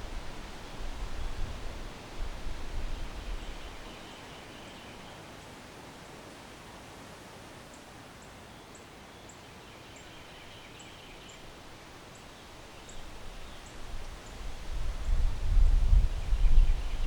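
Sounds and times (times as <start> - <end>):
low wind rumble: 0.0 - 3.9, 12.9 - 17.0
steady outdoor hiss: 0.0 - 17.0.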